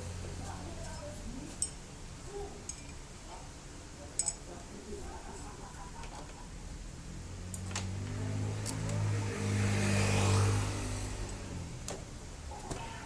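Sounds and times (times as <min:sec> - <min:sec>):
vehicle engine passing by: 0:07.0 - 0:11.9.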